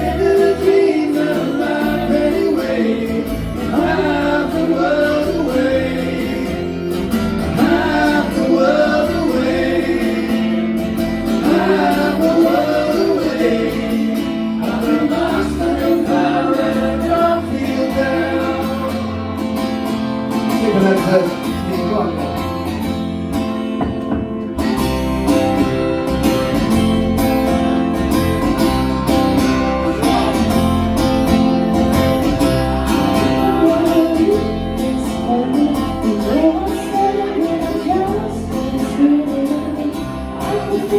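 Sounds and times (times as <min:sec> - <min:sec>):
bass guitar: 0:00.0 - 0:40.9
guitar: 0:00.0 - 0:40.9
person singing: 0:32.8 - 0:40.9.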